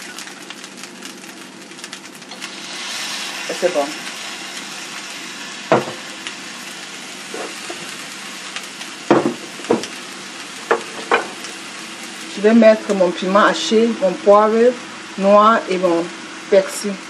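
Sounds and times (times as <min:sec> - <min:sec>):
rice sizzling in a wok: 0:00.0 - 0:17.0
sharp knocks on wok: 0:05.7 - 0:06.0, 0:09.1 - 0:09.9.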